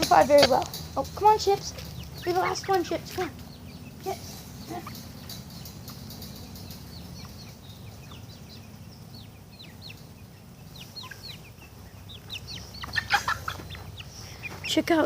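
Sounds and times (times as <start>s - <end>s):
chickens peeping: 0.0s - 15.0s.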